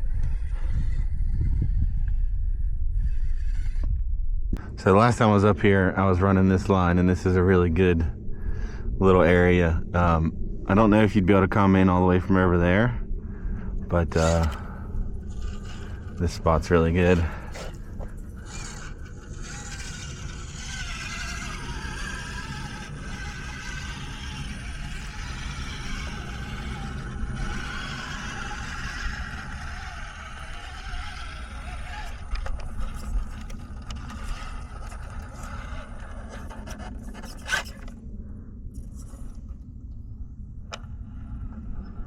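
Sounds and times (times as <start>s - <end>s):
electric motor whining: 0.0s - 4.0s, 14.0s - 38.0s
tyres scraping on stone: 15.3s - 37.9s.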